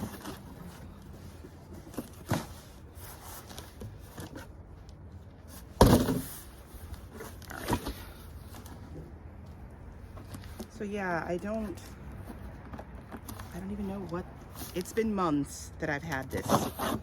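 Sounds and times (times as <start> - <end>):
cardboard boxes knocking and scraping: 0.0 - 4.5, 5.5 - 9.0.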